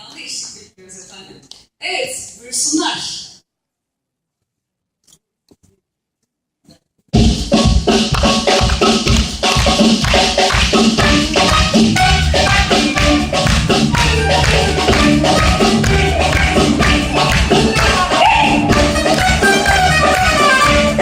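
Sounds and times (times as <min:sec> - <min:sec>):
drums and hand percussion: 0:07.0 - 0:21.0
live band playing folk song: 0:08.2 - 0:21.0.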